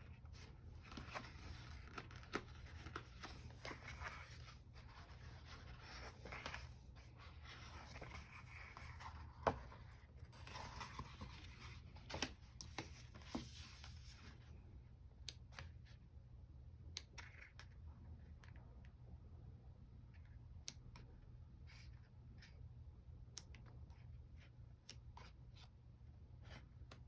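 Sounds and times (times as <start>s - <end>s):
paper rustling: 0.1s - 14.3s.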